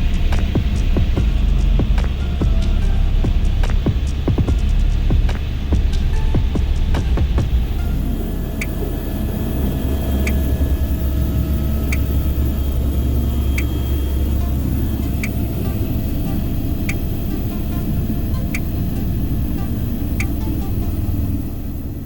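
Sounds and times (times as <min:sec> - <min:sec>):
low vehicle rumble: 0:00.0 - 0:22.0.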